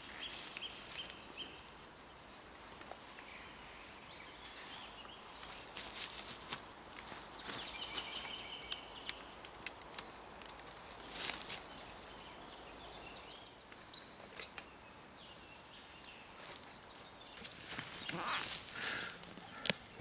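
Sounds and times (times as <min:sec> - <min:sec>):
birds chirping: 0:00.0 - 0:20.0
clicks and rustles: 0:07.4 - 0:11.8.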